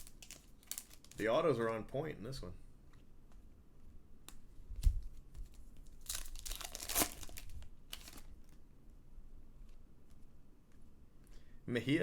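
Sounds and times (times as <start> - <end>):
wrapper tearing and crinkling: 0.0 - 1.2, 5.8 - 8.6.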